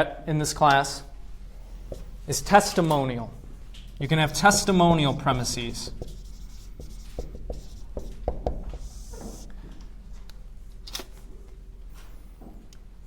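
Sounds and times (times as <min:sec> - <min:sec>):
scratchy writing stroke: 0:04.3 - 0:09.5.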